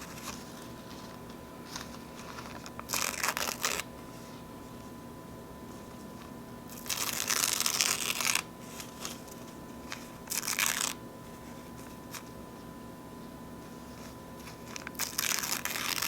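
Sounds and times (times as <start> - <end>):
paper napkin ripping: 0.0 - 3.9, 6.7 - 11.0, 13.8 - 16.0
paper crinkling: 0.0 - 4.5, 5.8 - 12.4, 13.6 - 16.0.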